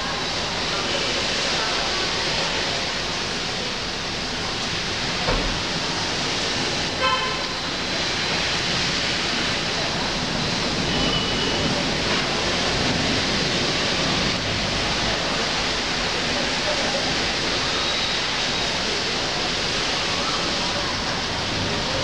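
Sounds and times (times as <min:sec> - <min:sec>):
rain falling on foliage: 0:00.0 - 0:22.0
vehicle horn toot: 0:07.0 - 0:07.6.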